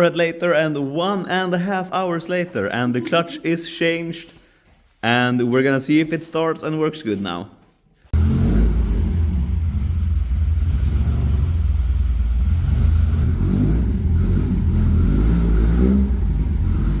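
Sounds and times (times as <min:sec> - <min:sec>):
car engine running steadily: 0:08.2 - 0:17.0.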